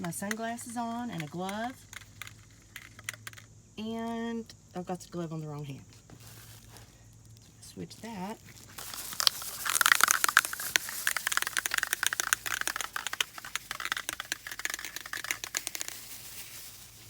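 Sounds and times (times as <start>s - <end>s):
glove crinkling and rustling: 5.7s - 17.0s.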